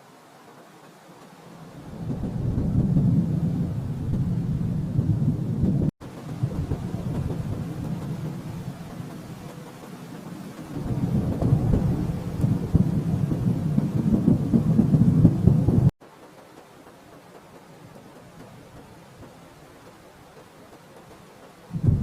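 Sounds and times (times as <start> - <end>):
rolling thunder: 1.8 - 9.6, 10.2 - 15.9, 21.7 - 22.0.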